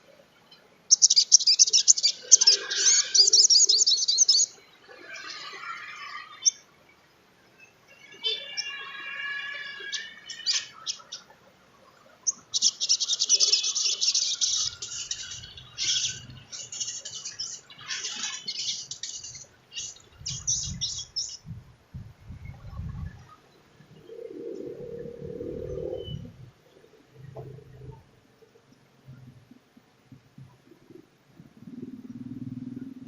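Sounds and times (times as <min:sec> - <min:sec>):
bird twittering with trills: 0:00.9 - 0:06.6, 0:07.6 - 0:11.4, 0:12.2 - 0:21.6, 0:22.3 - 0:28.0
low rumbling: 0:24.5 - 0:28.2.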